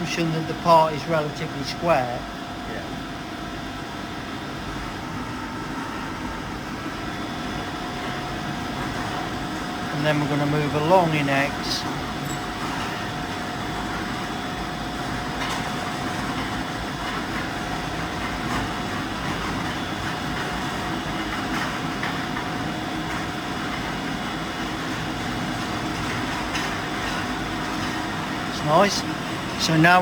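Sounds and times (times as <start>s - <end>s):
faint steady whine: 0.0s - 15.5s
milling machine hum and whir: 0.0s - 30.0s.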